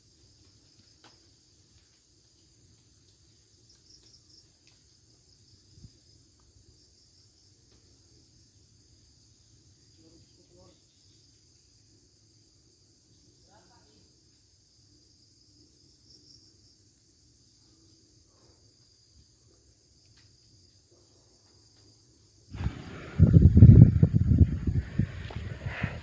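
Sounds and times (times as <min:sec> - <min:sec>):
insect chorus: 0:00.0 - 0:26.0.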